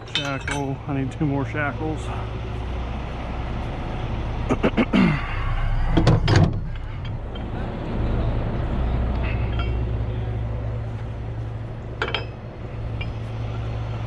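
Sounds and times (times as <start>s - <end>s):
clunks: 0.0s - 1.5s, 5.5s - 8.0s, 8.6s - 14.0s
truck engine idling: 0.0s - 14.0s.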